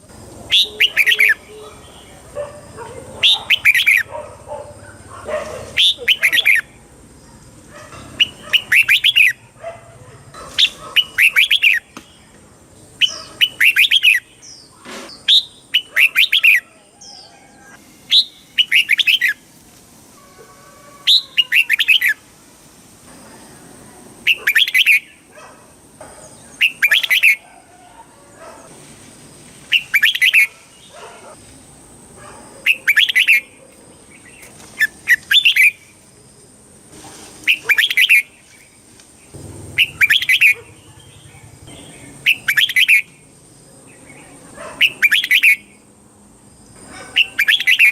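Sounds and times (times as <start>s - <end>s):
bulbul singing warbled phrases: 0.0s - 5.0s, 5.6s - 9.6s, 10.5s - 17.3s, 18.1s - 19.4s, 21.1s - 22.2s, 24.2s - 25.3s, 26.4s - 27.4s, 29.7s - 31.3s, 32.6s - 36.0s, 39.3s - 45.9s, 47.1s - 47.9s.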